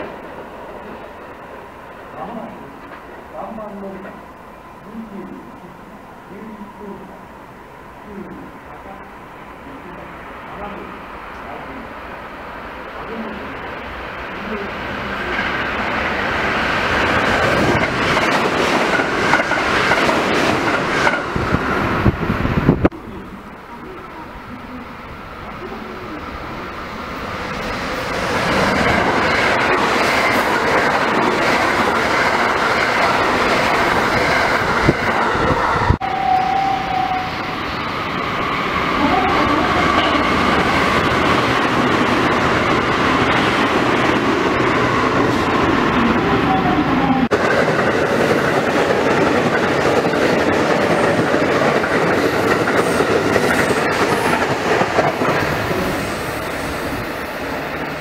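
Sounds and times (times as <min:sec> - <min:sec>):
train wheels running on rails: 0:12.6 - 0:58.0.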